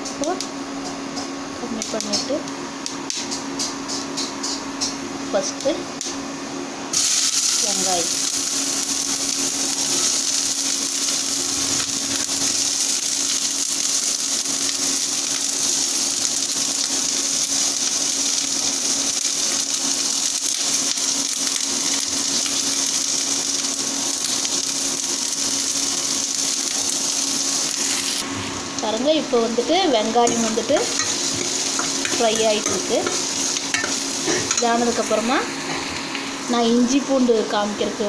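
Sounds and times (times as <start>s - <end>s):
onions sizzling in hot oil: 6.9s - 37.2s
constant low hum: 26.3s - 38.0s.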